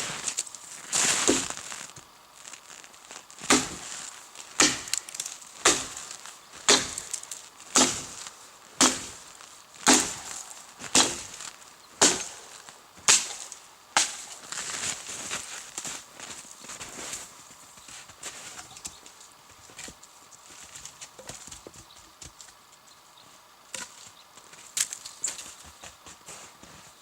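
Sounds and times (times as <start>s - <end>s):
axe chopping firewood: 3.4s - 4.0s, 4.6s - 8.2s, 8.8s - 9.2s, 9.8s - 11.4s, 12.0s - 12.4s, 13.0s - 14.3s.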